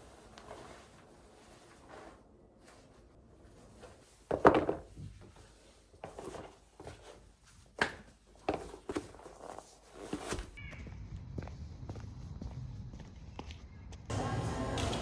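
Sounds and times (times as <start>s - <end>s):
knocks of objects being handled: 4.3s - 5.3s.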